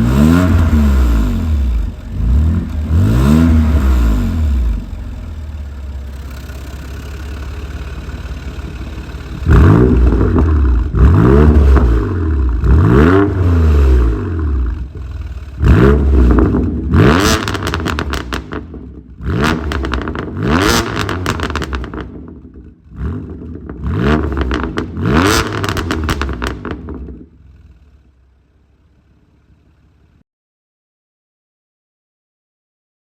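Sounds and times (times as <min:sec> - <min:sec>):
car engine revving: 0:00.0 - 0:27.9
exhaust popping and crackling: 0:08.5 - 0:27.6.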